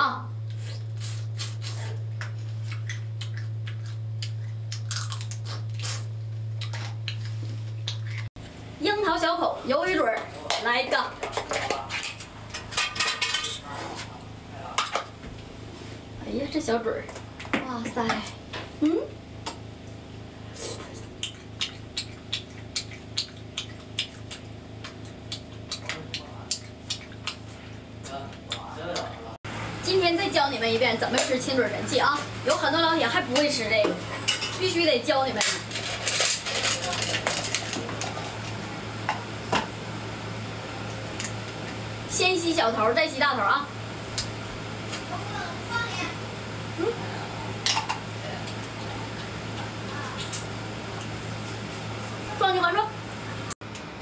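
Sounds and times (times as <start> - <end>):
low electrical hum: 0.0 - 54.0
crunchy food chewing: 1.0 - 8.3
mouth chewing wetly: 20.6 - 27.8.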